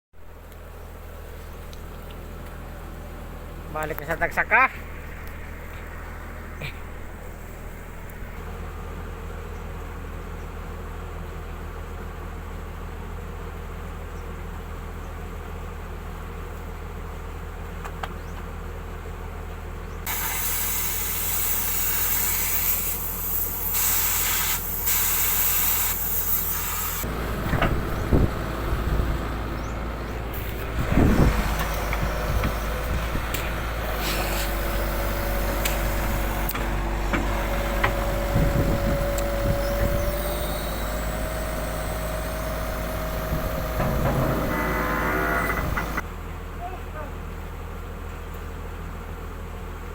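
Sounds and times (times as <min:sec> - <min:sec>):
diesel machinery engine hum: 0:00.2 - 0:20.3, 0:23.0 - 0:49.9
steady whine: 0:00.5 - 0:08.8, 0:26.2 - 0:46.0
hiss of released air: 0:20.1 - 0:27.1, 0:33.8 - 0:36.5
knocks and clanks: 0:27.2 - 0:28.4, 0:40.9 - 0:46.0.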